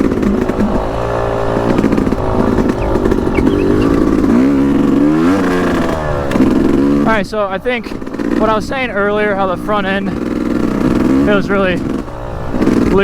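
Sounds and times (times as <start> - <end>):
two-stroke motorcycle engine: 0.0 - 7.2.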